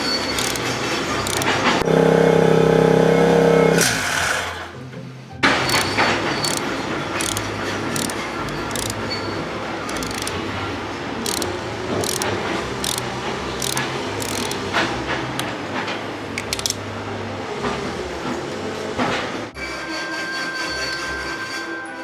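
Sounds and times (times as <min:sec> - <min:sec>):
hand tools clinking on metal: 0:00.0 - 0:01.8, 0:05.6 - 0:10.6.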